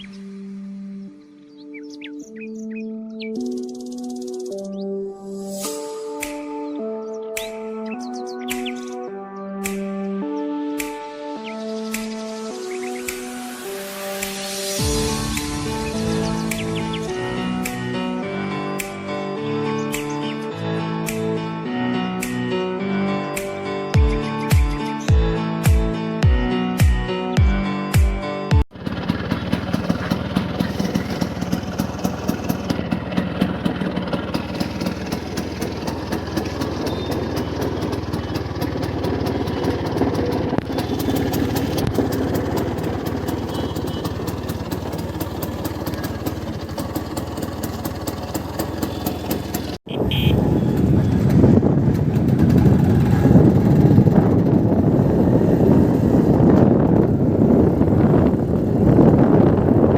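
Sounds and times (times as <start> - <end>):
scooter engine running: 28.7 - 59.9.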